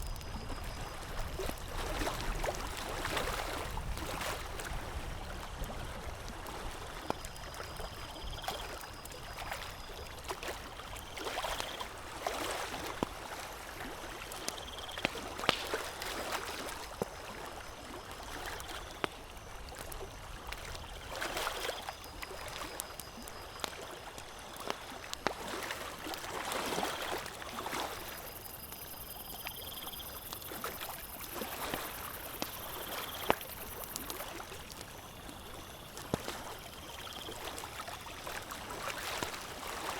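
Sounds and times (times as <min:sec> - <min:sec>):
campfire crackling and popping: 0:00.0 - 0:01.8, 0:12.8 - 0:16.1, 0:18.1 - 0:37.8.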